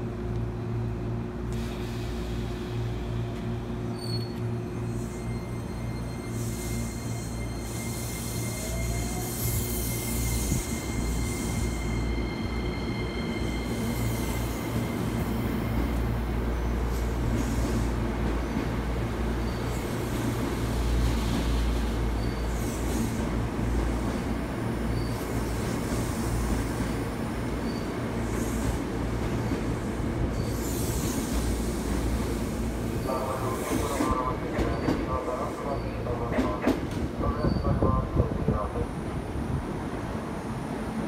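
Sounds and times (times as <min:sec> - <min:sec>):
train wheels rumbling on rail: 0:00.0 - 0:41.0
high wheel squeal: 0:03.9 - 0:15.0, 0:30.3 - 0:31.3.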